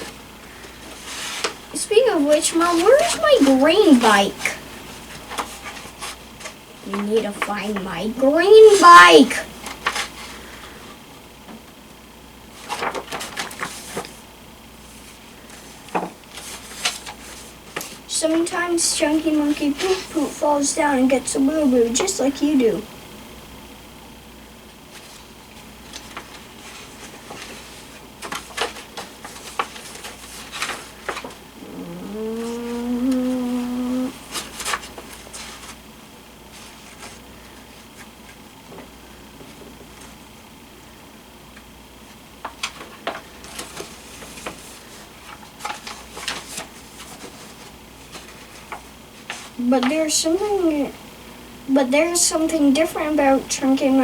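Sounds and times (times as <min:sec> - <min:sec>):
soft rustles of handling: 0:00.0 - 0:08.0, 0:12.4 - 0:18.5, 0:24.6 - 0:40.3, 0:42.0 - 0:50.1
faint room hiss: 0:00.0 - 0:54.0.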